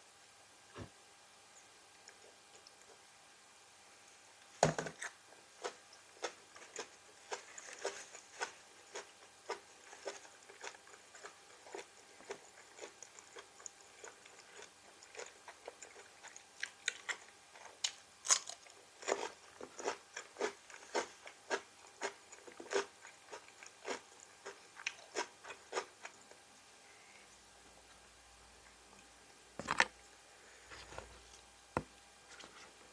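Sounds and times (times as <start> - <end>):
person chewing crunchy vegetables: 4.9 - 26.3, 29.6 - 29.9.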